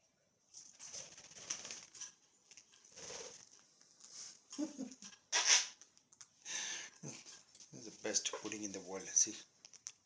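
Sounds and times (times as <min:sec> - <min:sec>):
rustling: 0:00.5 - 0:06.0.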